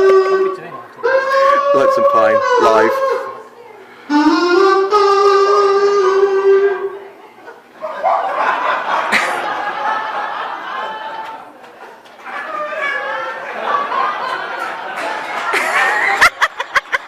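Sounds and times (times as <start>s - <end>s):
audience crowd noise: 6.9s - 17.0s.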